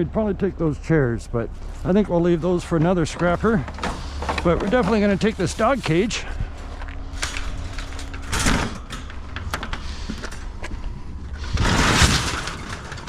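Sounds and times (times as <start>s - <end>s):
metal scraping clatter: 1.6s - 13.0s
metal cage clanking and rattling: 2.6s - 6.0s, 7.2s - 10.7s, 11.3s - 13.0s.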